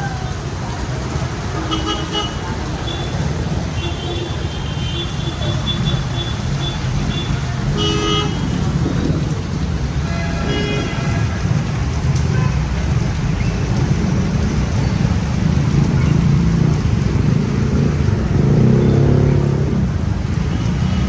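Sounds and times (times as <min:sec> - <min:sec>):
heavy rain: 0:00.0 - 0:21.0
road traffic: 0:00.0 - 0:21.0
car horns tooting: 0:01.6 - 0:09.3, 0:10.0 - 0:11.6.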